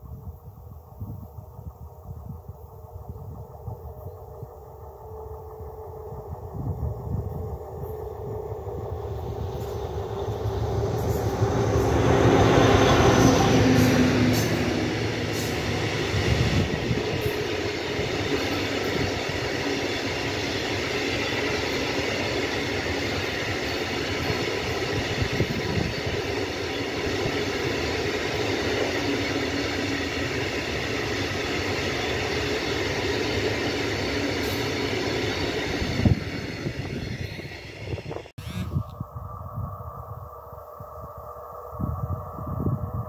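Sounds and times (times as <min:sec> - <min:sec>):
steel train wheels clattering on rails: 0:08.9 - 0:38.0.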